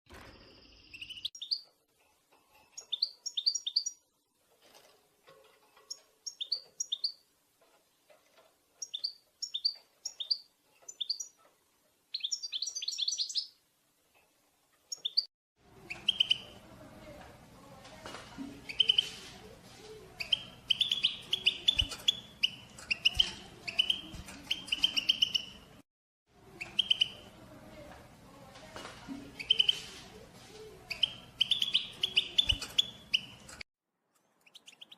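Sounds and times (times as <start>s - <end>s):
goldfinch chirping: 0.7s - 1.6s, 2.7s - 4.0s, 5.9s - 7.2s, 8.8s - 11.4s, 12.1s - 13.6s, 14.9s - 16.6s, 18.7s - 19.2s, 20.2s - 25.7s, 26.6s - 27.2s, 29.4s - 29.9s, 30.9s - 33.6s, 34.4s - 34.9s.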